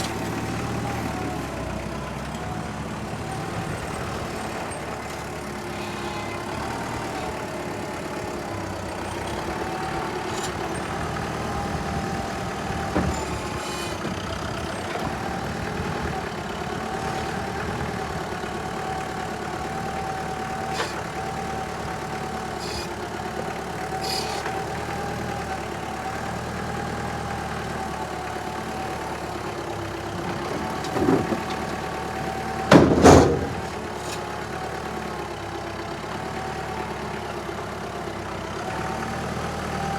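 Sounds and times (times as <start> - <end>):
engine idling with whine: 0.0 - 30.3.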